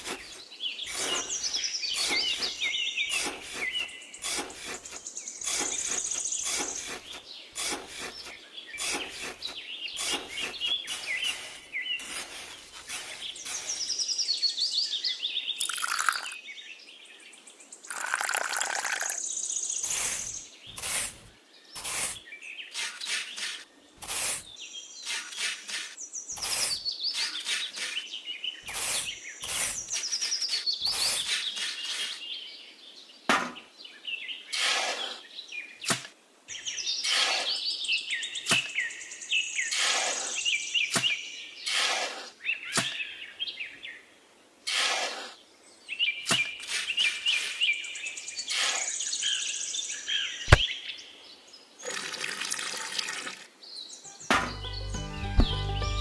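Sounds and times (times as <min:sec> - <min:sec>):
trowel scraping wet cement: 0:00.0 - 0:14.0, 0:19.8 - 0:28.1, 0:28.7 - 0:32.2, 0:34.5 - 0:35.2, 0:37.0 - 0:37.7, 0:39.7 - 0:43.0, 0:44.7 - 0:45.4, 0:46.3 - 0:47.7
birds chirping and singing: 0:00.0 - 0:44.2, 0:44.8 - 0:51.7, 0:53.6 - 0:56.0.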